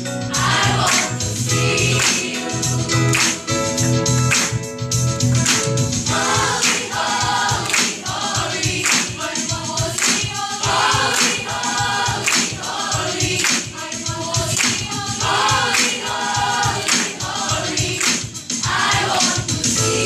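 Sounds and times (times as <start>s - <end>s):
choir singing gospel song: 0.2s - 3.8s, 6.0s - 20.0s
sharp percussive hits: 5.4s - 13.8s.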